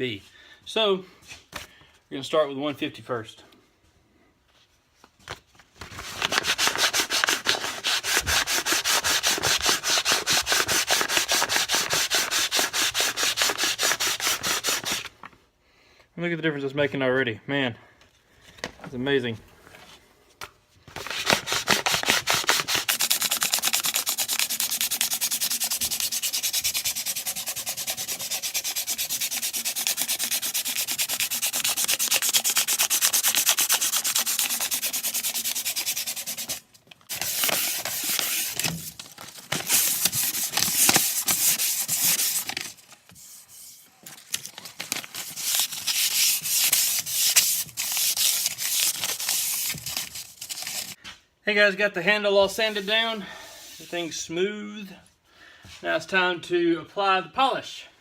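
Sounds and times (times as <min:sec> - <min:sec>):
sandpaper rubbing wood: 0:06.0 - 0:15.1, 0:21.0 - 0:43.8, 0:44.9 - 0:51.0.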